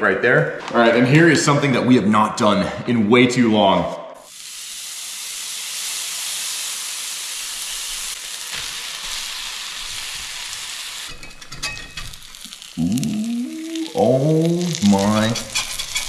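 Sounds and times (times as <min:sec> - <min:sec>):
cheese sizzling in a pan: 0:04.3 - 0:16.0.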